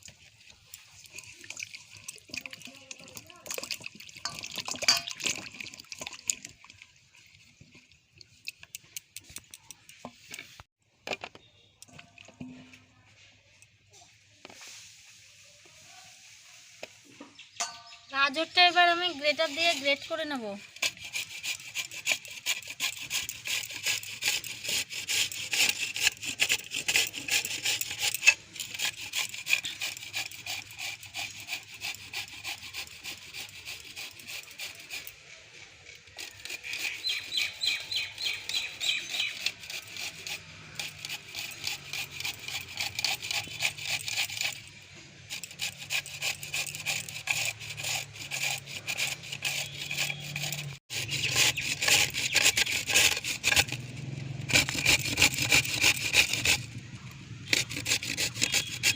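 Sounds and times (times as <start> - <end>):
carrots grated on hand grater: 18.3 - 35.3, 36.0 - 44.7, 45.3 - 53.8, 54.4 - 56.7, 57.4 - 58.9.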